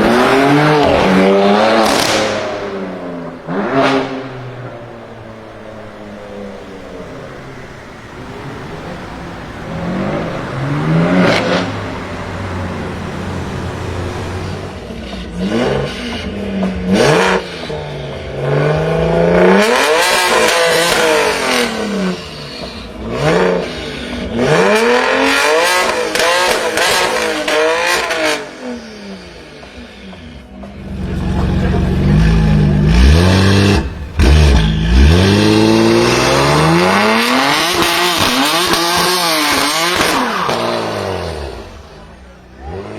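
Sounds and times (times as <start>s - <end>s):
car engine revving: 0.0s - 42.9s
exhaust cracks: 25.8s - 42.9s.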